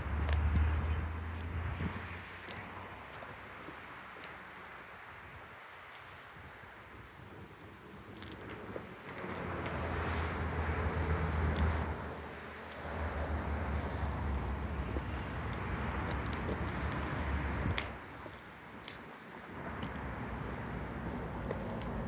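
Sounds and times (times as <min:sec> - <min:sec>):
faint light ticks: 0:00.0 - 0:22.0.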